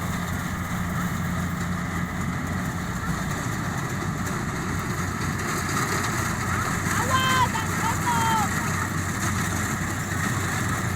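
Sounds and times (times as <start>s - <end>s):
harvesting machine engine running: 0.0s - 10.9s.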